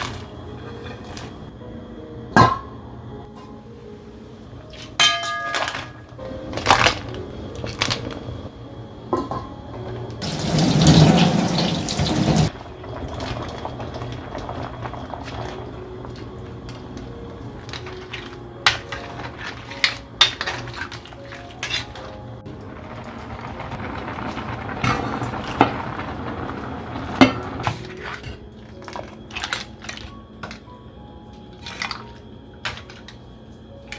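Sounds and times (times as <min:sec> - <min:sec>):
dishes and utensils clinking: 0:00.0 - 0:01.5, 0:04.7 - 0:08.2, 0:15.2 - 0:22.2, 0:31.5 - 0:33.2
water running: 0:10.2 - 0:30.1.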